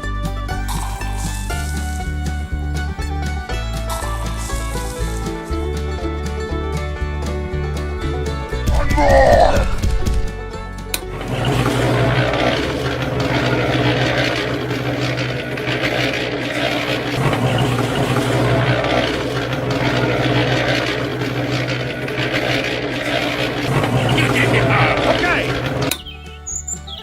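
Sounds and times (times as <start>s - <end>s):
small motor humming: 0.6s - 2.7s, 3.5s - 6.1s, 11.0s - 27.0s.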